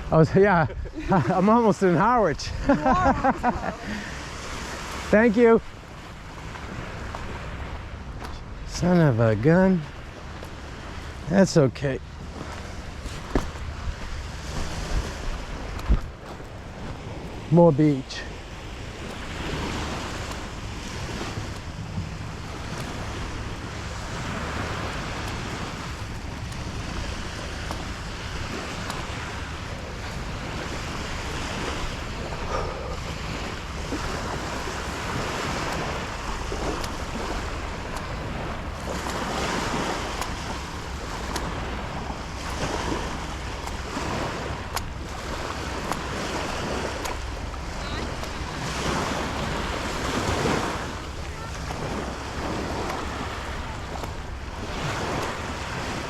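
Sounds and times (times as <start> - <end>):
ocean surf washing on beach: 0.0 - 56.0
wind rumbling on microphone: 12.0 - 56.0.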